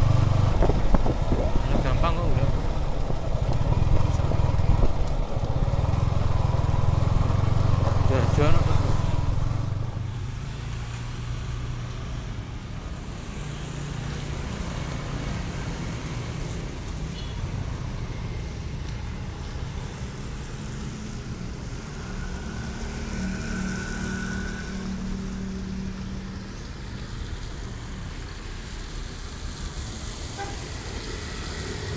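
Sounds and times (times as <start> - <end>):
motorcycle engine running: 0.0 - 10.2
wind and road noise: 0.0 - 31.9.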